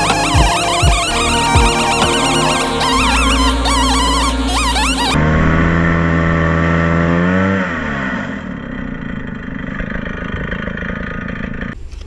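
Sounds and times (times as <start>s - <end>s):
background music: 0.0s - 5.2s
engine running at high revs: 0.0s - 9.6s.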